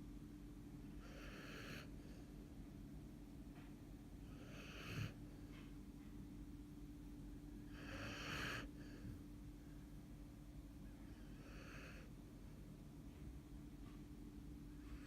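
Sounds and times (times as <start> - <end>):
dog snoring: 0.9 - 2.2, 4.2 - 5.2, 7.6 - 9.2, 11.1 - 12.1
dog snuffles: 4.3 - 5.2, 7.8 - 8.8.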